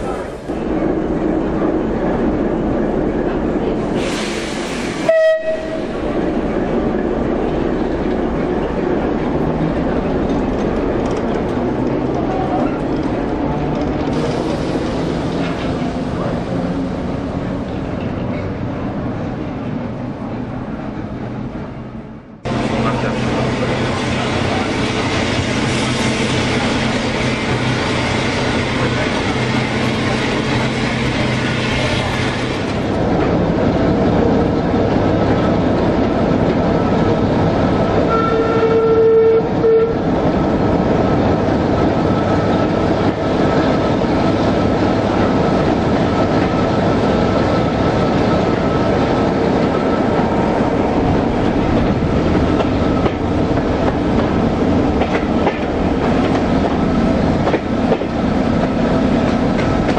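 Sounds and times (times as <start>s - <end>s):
locomotive warning horn: 5.0s - 6.0s, 38.1s - 40.0s
train wheels clickety-clack: 9.4s - 16.6s, 51.4s - 59.9s.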